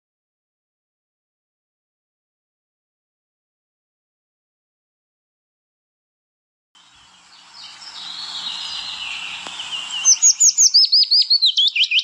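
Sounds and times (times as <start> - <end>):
chorus of chirping birds: 6.8 - 12.0
bird whistling sharp descending notes: 7.3 - 12.0.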